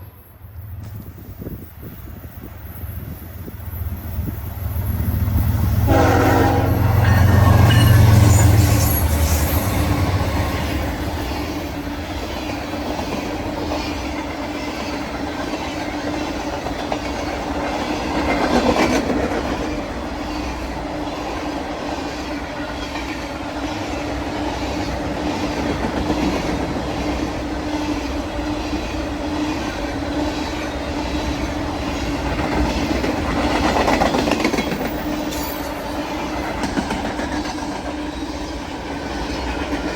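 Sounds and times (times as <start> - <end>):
diesel locomotive engines rumbling: 0.0 - 39.9
train wheels clacking over rail joints: 4.3 - 39.9.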